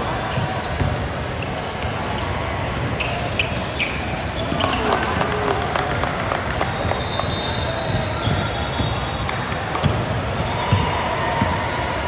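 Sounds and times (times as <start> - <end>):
crowded gym din: 0.0 - 12.0
basketballs bouncing on court: 0.3 - 12.0.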